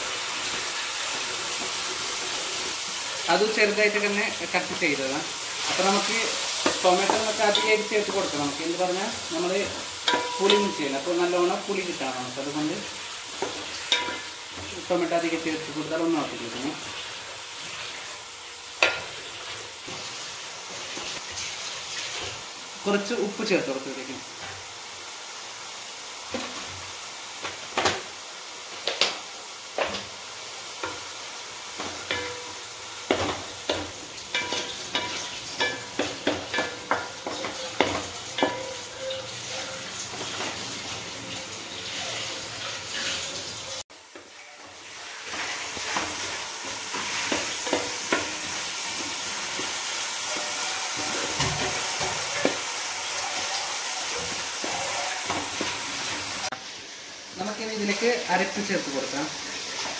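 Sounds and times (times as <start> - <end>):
vegetables sizzling in oil: 0.0 - 59.9
spatula scraping a pan: 31.8 - 41.1, 44.9 - 56.4.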